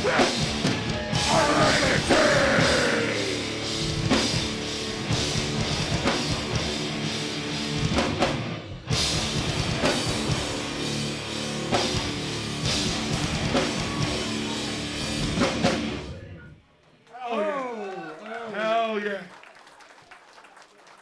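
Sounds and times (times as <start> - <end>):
live band playing hardcore: 0.0 - 16.4.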